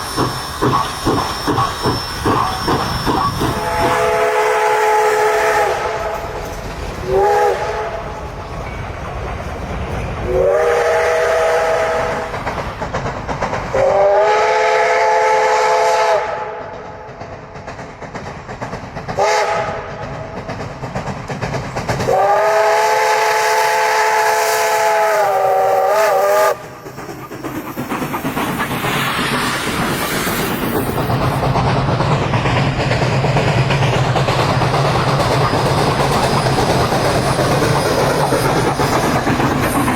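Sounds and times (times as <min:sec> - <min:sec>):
steam whistle blasts: 0:00.0 - 0:06.3, 0:07.0 - 0:08.1, 0:10.3 - 0:12.3, 0:13.8 - 0:16.7, 0:19.2 - 0:19.9, 0:22.1 - 0:26.6
wheels clacking on rail joints: 0:00.0 - 0:14.2, 0:16.6 - 0:24.1, 0:24.8 - 0:39.9
steam hissing: 0:00.0 - 0:39.9
train rumbling: 0:00.0 - 0:39.9.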